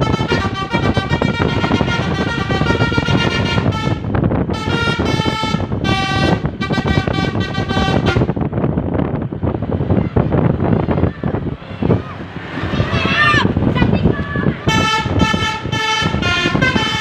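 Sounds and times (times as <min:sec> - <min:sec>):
musical air horn melody: 0:00.0 - 0:08.4, 0:14.7 - 0:17.0
road and engine noise: 0:00.0 - 0:17.0.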